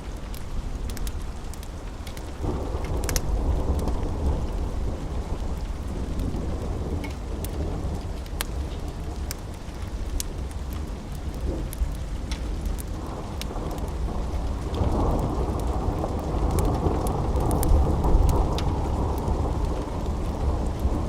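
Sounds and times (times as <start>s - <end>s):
steady rain: 0.0s - 21.0s
thunder rolling: 13.9s - 21.0s.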